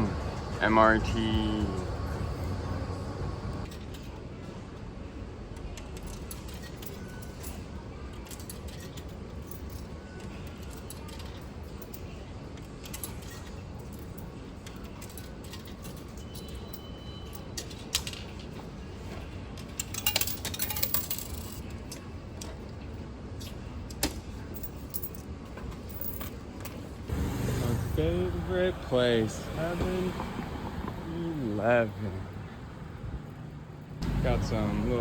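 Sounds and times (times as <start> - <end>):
subway train rumble: 0.0 - 5.4, 26.8 - 35.0.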